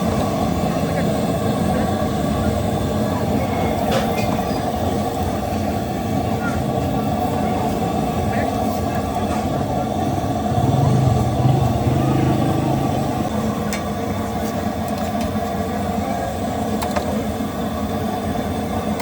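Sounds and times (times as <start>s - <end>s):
road noise: 0.0s - 16.6s
vehicle engine passing by: 10.1s - 13.5s.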